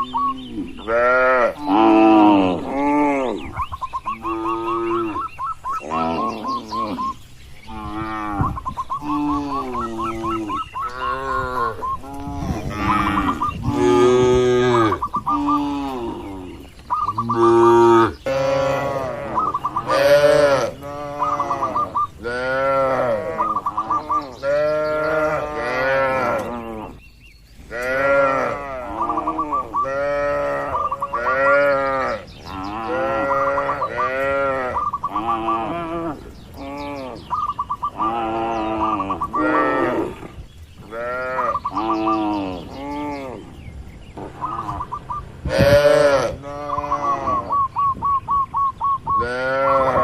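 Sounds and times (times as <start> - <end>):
cattle mooing: 0.0 - 3.4, 7.7 - 27.0, 27.7 - 37.3, 44.4 - 47.5, 49.2 - 50.0.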